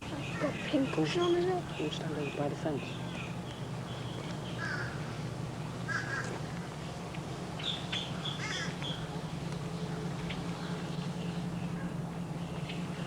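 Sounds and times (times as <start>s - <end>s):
harsh caw-like bird calls: 4.6s - 5.1s, 5.9s - 6.4s, 8.0s - 9.0s.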